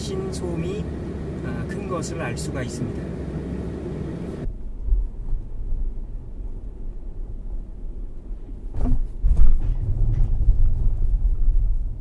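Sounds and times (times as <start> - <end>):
low road rumble in car cabin: 0.0 - 12.0
underbody knocks and rattles: 8.6 - 12.0.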